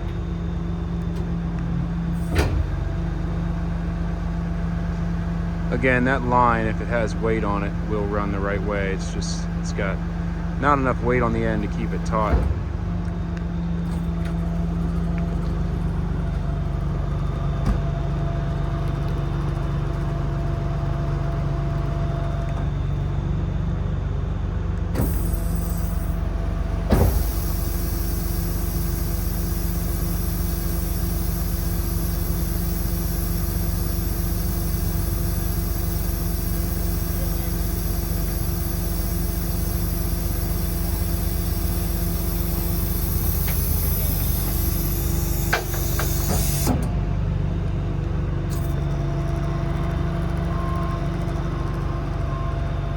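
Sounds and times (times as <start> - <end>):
diesel engine hum: 0.0 - 52.9
hydraulic hiss: 2.2 - 2.9, 25.0 - 46.8.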